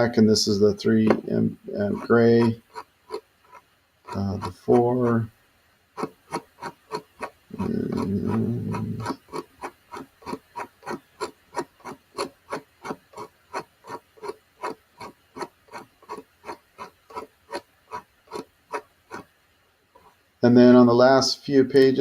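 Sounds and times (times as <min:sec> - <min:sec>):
sharp fast ticking clicks: 0:01.0 - 0:05.4, 0:06.0 - 0:19.4.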